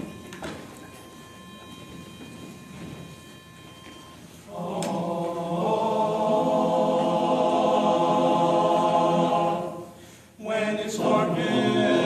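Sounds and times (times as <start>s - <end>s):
group singing unaccompanied: 4.5s - 12.0s.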